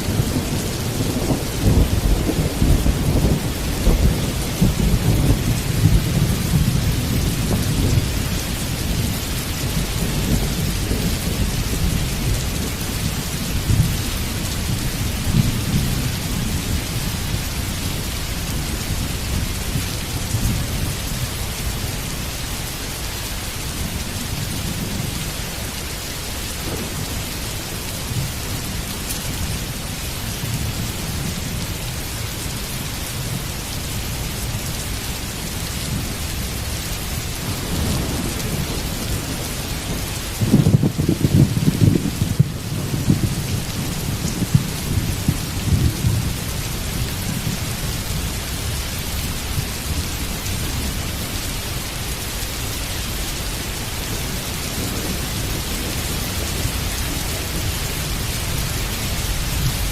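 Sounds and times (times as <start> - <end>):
thunder rumbling: 0.0 - 22.5, 23.4 - 59.9
heavy rain: 0.0 - 59.9.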